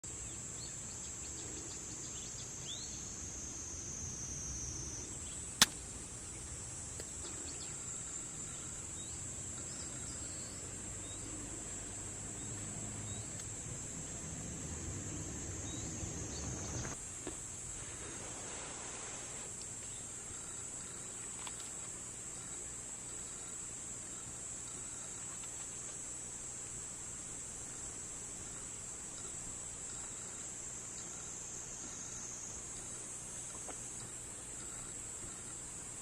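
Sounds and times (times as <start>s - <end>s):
high-pitched insect chorus: 0.0s - 36.0s
campfire pop: 5.6s - 6.0s.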